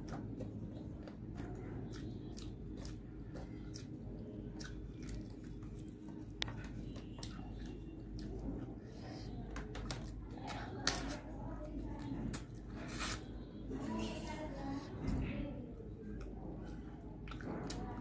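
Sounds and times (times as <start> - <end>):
person chewing and crunching: 0.0 - 9.0, 12.3 - 13.3, 16.1 - 18.0
low steady hum: 0.0 - 18.0.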